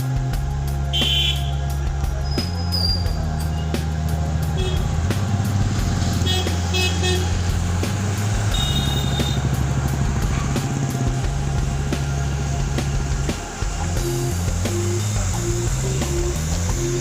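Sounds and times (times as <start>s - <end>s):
vehicle engines running: 0.0s - 17.0s
long horn blast: 0.9s - 1.8s, 4.5s - 5.4s, 6.1s - 7.5s, 8.4s - 10.8s
short horn toots: 1.0s - 1.6s, 8.5s - 9.5s.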